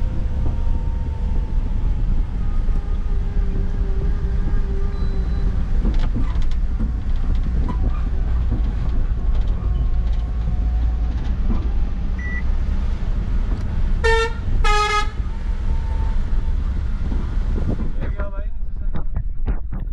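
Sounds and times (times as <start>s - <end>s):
truck engine rumbling: 0.0s - 19.8s
vehicle horn honking: 14.0s - 15.3s.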